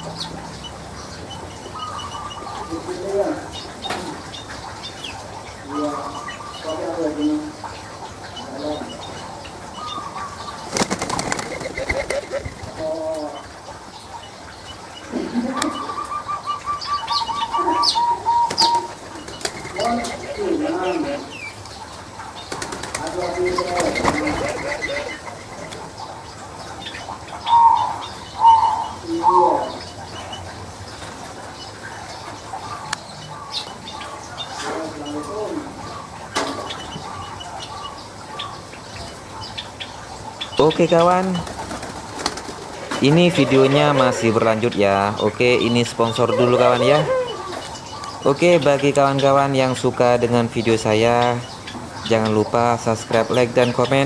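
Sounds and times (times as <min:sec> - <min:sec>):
low pitched bird calls: 0:00.0 - 0:31.0, 0:31.6 - 0:54.0
wings flapping: 0:10.5 - 0:13.3, 0:18.4 - 0:20.6, 0:22.4 - 0:25.9, 0:41.1 - 0:43.8.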